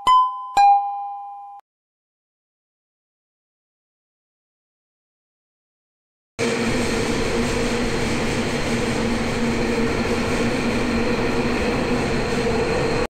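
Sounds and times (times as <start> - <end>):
steady tonal hum: 6.4 - 13.0
subway train rumble: 6.4 - 13.0.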